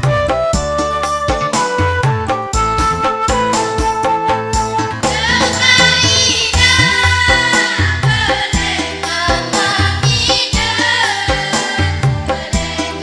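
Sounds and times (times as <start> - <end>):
regular low beat: 0.0 - 10.7
instrumental accompaniment: 0.0 - 13.0
choir singing: 4.8 - 13.0.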